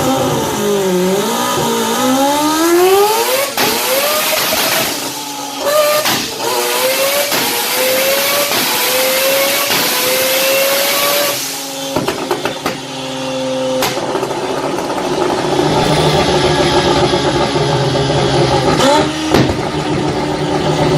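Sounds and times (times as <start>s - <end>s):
rotary engine accelerating: 0.0s - 20.9s
exhaust pops and crack: 5.9s - 6.6s, 13.8s - 16.4s.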